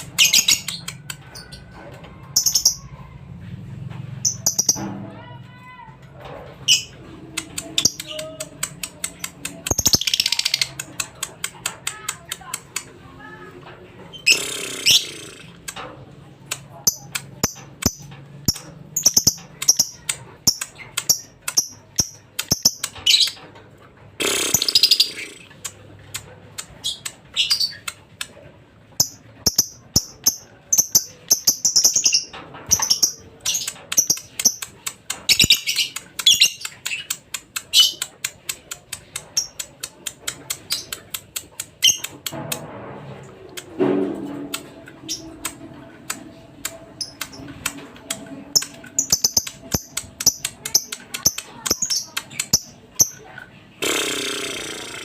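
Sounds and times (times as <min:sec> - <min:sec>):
bird chirping: 0:04.2 - 0:04.8, 0:48.6 - 0:53.2
harsh bird chattering: 0:06.7 - 0:12.9, 0:14.2 - 0:15.8, 0:24.2 - 0:28.1.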